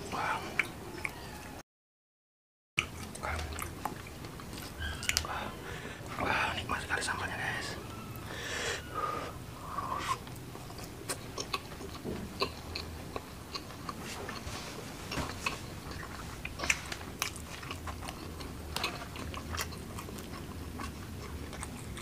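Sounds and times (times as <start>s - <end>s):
chewing and wet mouth smacks: 2.8s - 5.3s, 10.1s - 14.4s, 15.2s - 22.0s.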